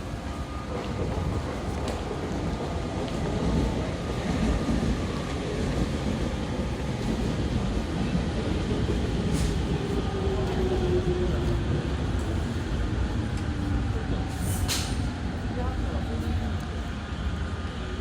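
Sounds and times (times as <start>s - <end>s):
electric train rumbling: 0.0s - 18.0s.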